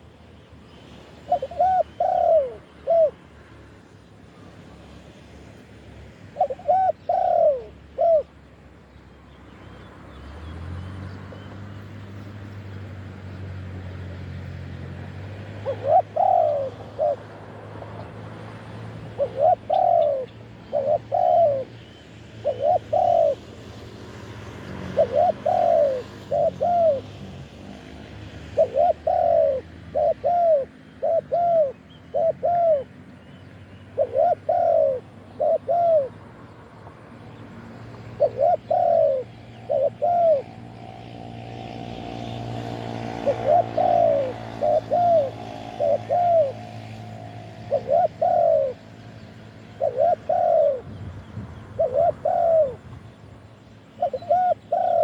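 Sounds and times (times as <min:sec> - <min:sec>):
dove cooing: 0:01.2 - 0:03.2, 0:06.3 - 0:08.4, 0:15.4 - 0:33.0, 0:33.8 - 0:36.5, 0:37.9 - 0:55.0.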